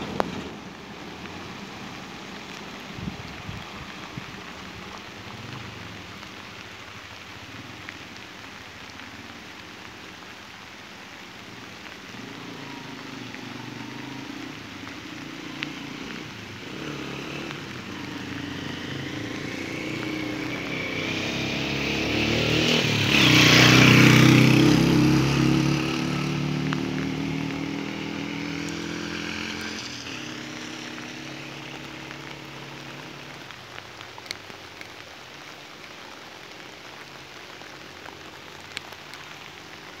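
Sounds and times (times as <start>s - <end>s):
steady rain falling: 0.0s - 40.0s
motorcycle passing: 11.4s - 33.6s.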